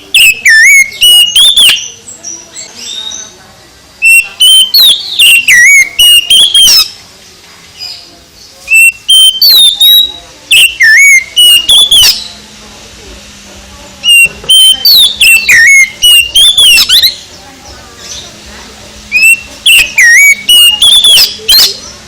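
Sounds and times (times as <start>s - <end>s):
bird singing whistled phrases: 0.0s - 3.3s, 4.0s - 7.0s, 8.7s - 12.4s, 14.0s - 17.2s, 19.1s - 22.0s.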